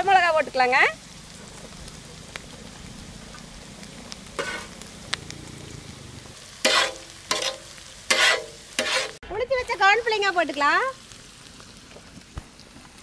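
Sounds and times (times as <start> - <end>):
vegetables sizzling in oil: 0.0 - 13.0
metal spoon scraping pan: 4.4 - 4.8, 6.6 - 9.2.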